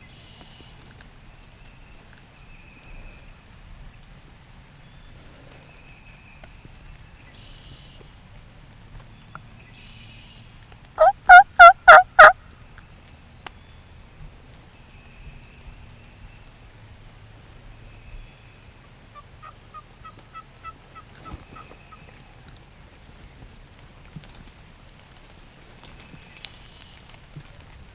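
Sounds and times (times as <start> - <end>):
turkey gobbling: 11.0 - 12.4.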